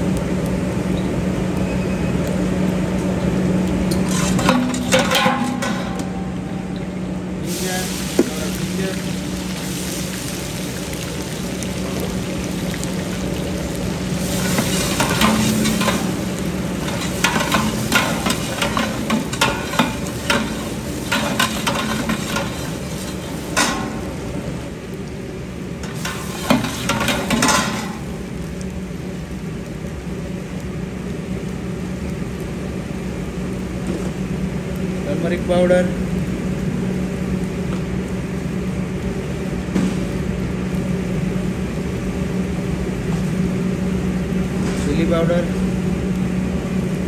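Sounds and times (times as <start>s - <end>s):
ginger sizzling in hot fat: 0.0s - 47.0s
steady low hum: 0.0s - 47.0s
spatula scraping metal pot: 4.0s - 6.0s.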